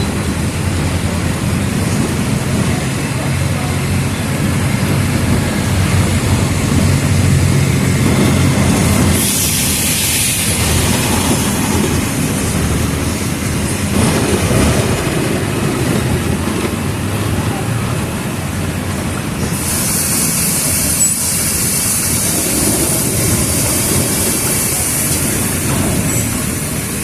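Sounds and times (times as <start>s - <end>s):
bus diesel engine rumble: 0.0s - 27.0s
high hiss: 9.0s - 12.4s, 19.5s - 26.5s
bus body rattle: 20.7s - 27.0s.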